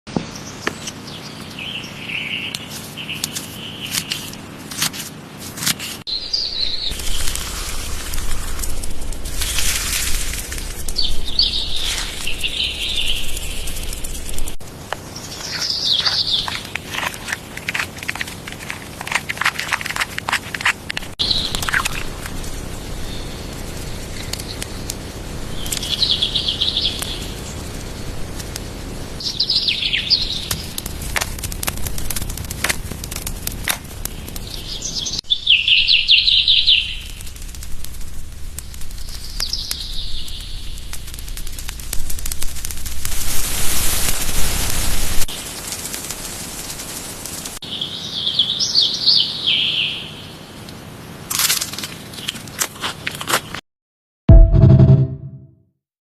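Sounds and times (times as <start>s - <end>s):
bird chirping: 0.1s - 4.4s, 6.1s - 8.5s, 11.0s - 17.8s, 29.2s - 30.5s, 34.5s - 37.1s
low rumble: 6.1s - 14.6s, 54.3s - 55.5s
loud hiss: 6.3s - 16.4s, 37.0s - 47.5s
sharp cracks: 6.8s - 27.8s, 30.3s - 34.8s, 36.3s - 43.2s
crackling clicks: 6.9s - 26.2s, 30.4s - 34.6s, 37.0s - 43.2s.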